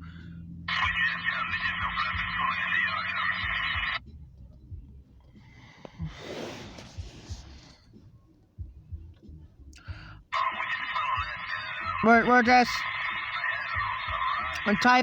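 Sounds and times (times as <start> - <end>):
voice chatter over radio speaker: 0.7 - 4.0, 10.3 - 15.0.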